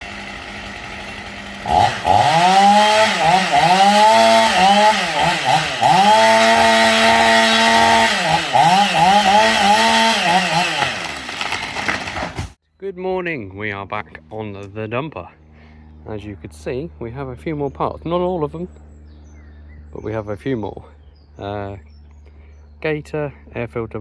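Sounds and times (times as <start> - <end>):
small engine revving: 0.0 - 12.6.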